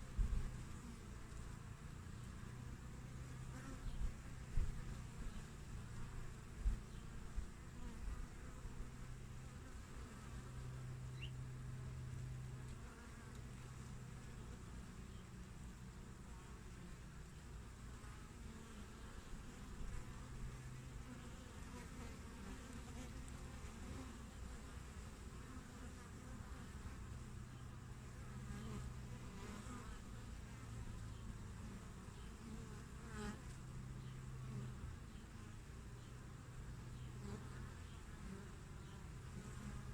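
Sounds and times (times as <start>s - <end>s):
hum of many bees flying: 0.0s - 39.9s
single bee buzzing close by: 3.1s - 11.3s, 17.9s - 27.2s, 28.1s - 30.8s, 31.6s - 34.9s, 37.2s - 39.9s.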